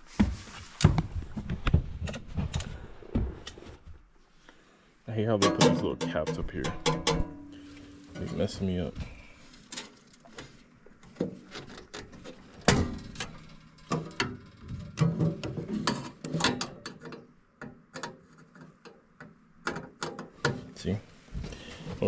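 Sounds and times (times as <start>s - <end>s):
metal knocks: 5.4s - 7.6s.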